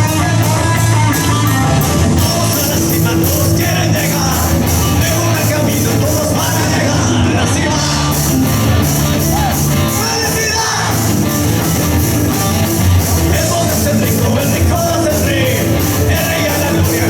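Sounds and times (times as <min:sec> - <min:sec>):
person singing: 0:00.0 - 0:08.4, 0:13.2 - 0:17.0
bass guitar: 0:00.0 - 0:17.0
drum kit with cymbals: 0:00.0 - 0:17.0
electric guitar: 0:00.0 - 0:17.0.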